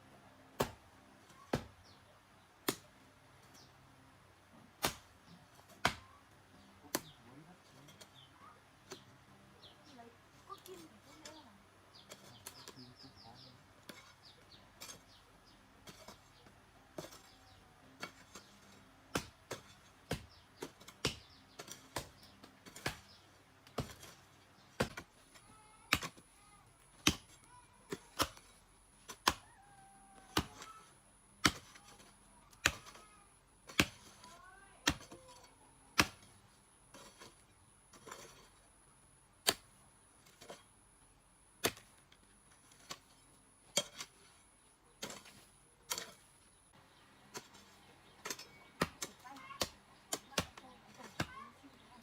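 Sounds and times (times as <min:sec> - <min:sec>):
hand tool striking: 0:30.2 - 0:38.6.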